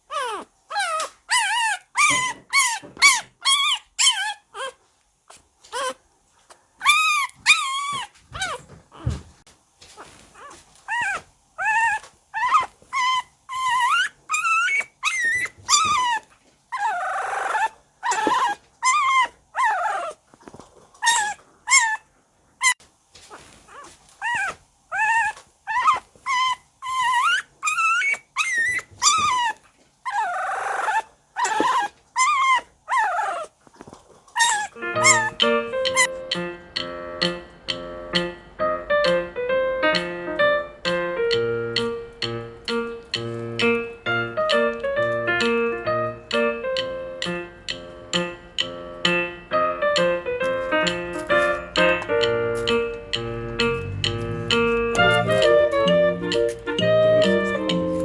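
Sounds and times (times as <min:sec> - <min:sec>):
puppy whining and yipping: 0:00.1 - 0:04.8, 0:05.7 - 0:06.0, 0:06.8 - 0:09.2, 0:10.0 - 0:36.2.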